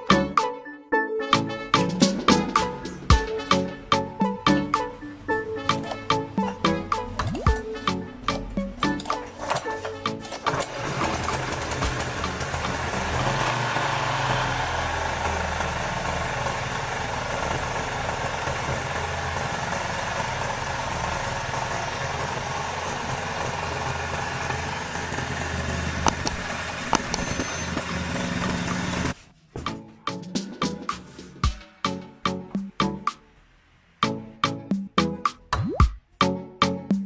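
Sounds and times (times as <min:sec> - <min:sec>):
small engine idling: 0:08.3 - 0:29.2
short clicks: 0:26.1 - 0:27.6.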